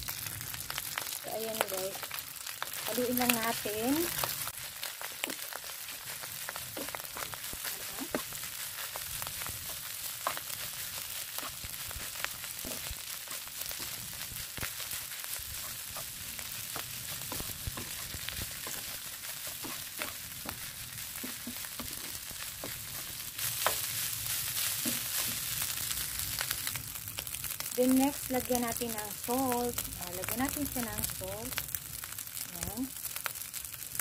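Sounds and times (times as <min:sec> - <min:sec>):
rice sizzling in a pan: 0:00.0 - 0:34.0
utensil scraping a pan: 0:15.4 - 0:24.0.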